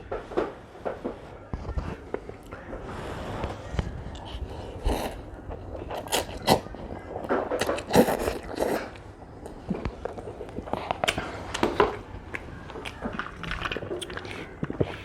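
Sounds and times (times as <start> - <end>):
person chewing noodles: 3.9 - 15.0.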